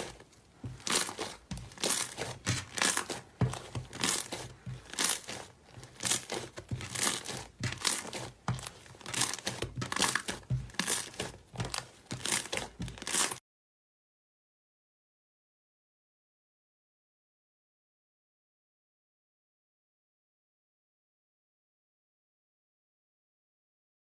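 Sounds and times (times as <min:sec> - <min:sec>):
slime crackling and crinkling: 0:00.0 - 0:13.4.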